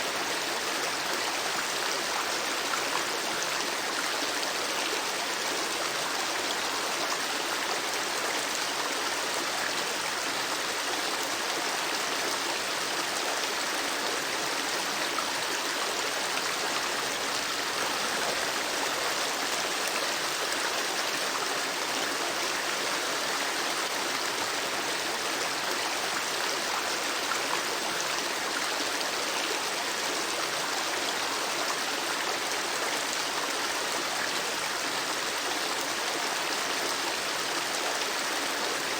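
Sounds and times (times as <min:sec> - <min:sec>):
river water flowing: 0:00.0 - 0:38.9.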